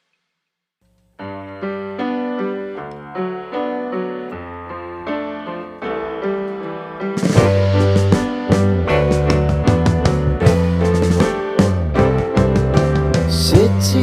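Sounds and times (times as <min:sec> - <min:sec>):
keyboard playing held notes: 0:01.2 - 0:14.0
drums: 0:07.0 - 0:14.0.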